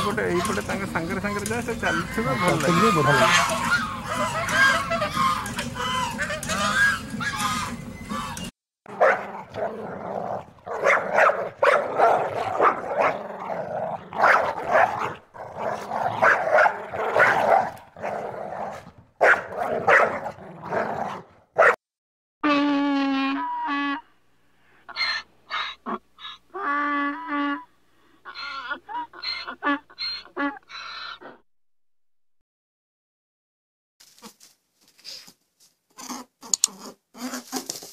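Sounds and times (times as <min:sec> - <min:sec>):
donkey braying: 0:00.0 - 0:09.2, 0:22.4 - 0:31.4
young dogs barking and yipping: 0:00.0 - 0:09.7, 0:10.4 - 0:20.4, 0:24.9 - 0:26.8.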